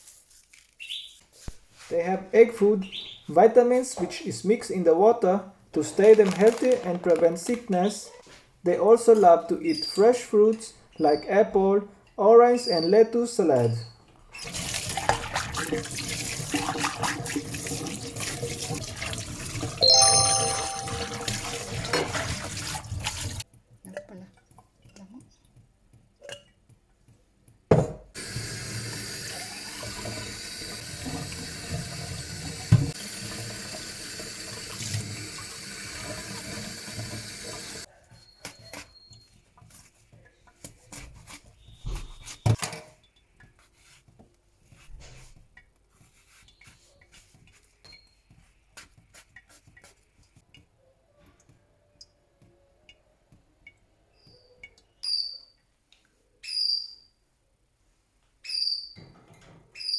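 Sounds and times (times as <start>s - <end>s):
water tap running: 14.4s - 19.8s, 20.7s - 23.4s, 28.2s - 37.9s
short high chirps: 19.8s - 21.5s.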